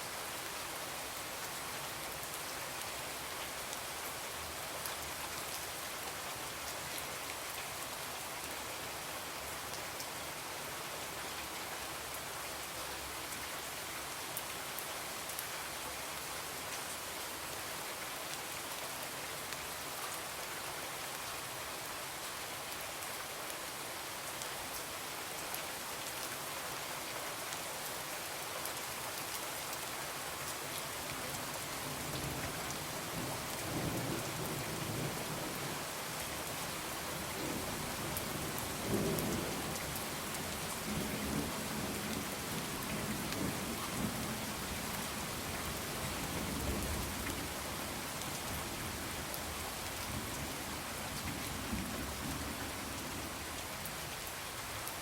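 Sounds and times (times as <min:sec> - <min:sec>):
rain pattering on a window: 0:24.3 - 0:55.0.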